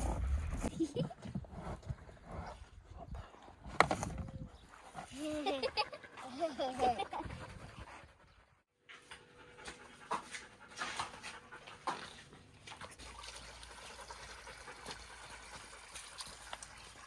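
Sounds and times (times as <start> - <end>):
dog panting: 4.8 - 12.3, 13.6 - 16.0.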